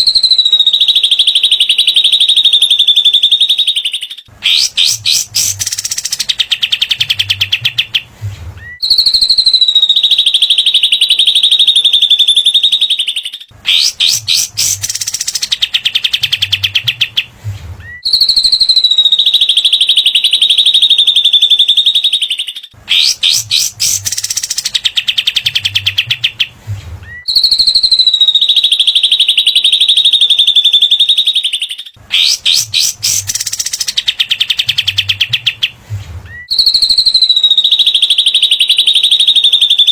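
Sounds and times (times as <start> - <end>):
bird high whistle: 0.0 - 8.0, 8.6 - 35.7, 36.3 - 39.9.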